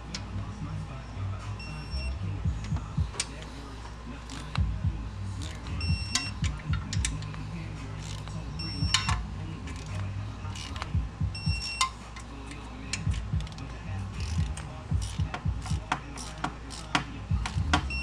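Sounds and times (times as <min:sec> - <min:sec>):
torque wrench short beeps: 0:01.6 - 0:02.2, 0:05.4 - 0:06.5, 0:08.1 - 0:09.2, 0:11.4 - 0:12.0
torque wrench ratcheting clicks: 0:08.0 - 0:10.9, 0:11.5 - 0:18.0.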